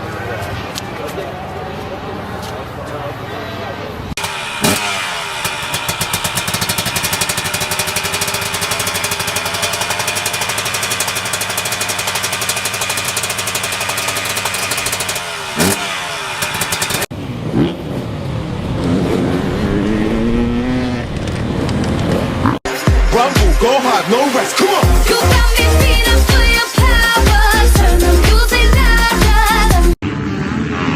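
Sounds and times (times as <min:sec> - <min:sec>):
engine revving up and down: 0:04.2 - 0:22.7, 0:30.0 - 0:30.9
dirt bike engine running hard: 0:04.2 - 0:22.9, 0:24.8 - 0:30.9.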